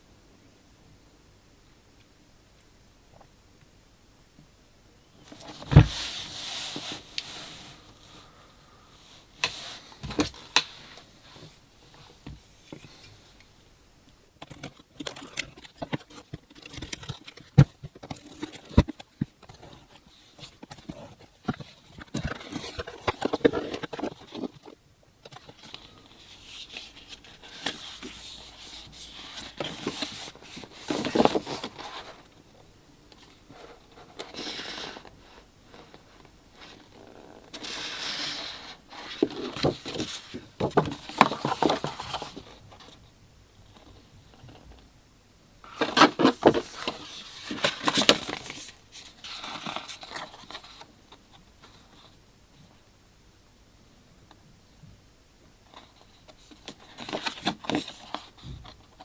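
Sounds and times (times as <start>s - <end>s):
hands handling packaging: 14.4s - 32.3s, 35.9s - 43.0s, 45.7s - 51.9s.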